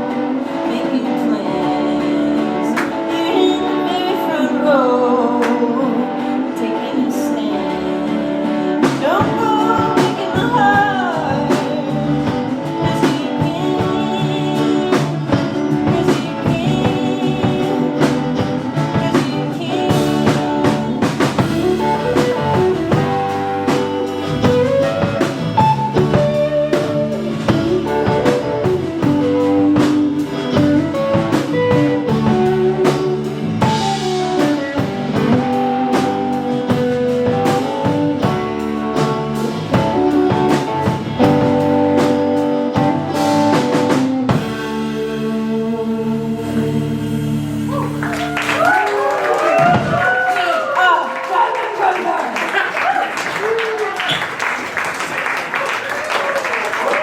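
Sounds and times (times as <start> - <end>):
person singing: 0.0 - 48.8
live band playing: 0.0 - 57.0.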